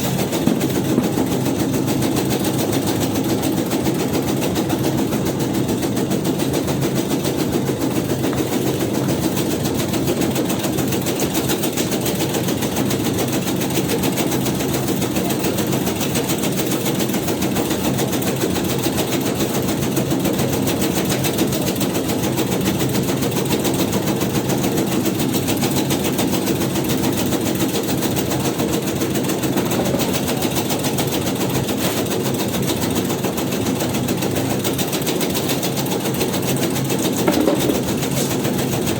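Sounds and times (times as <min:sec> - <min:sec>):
cutter chopping leaves: 0:36.2 - 0:38.9.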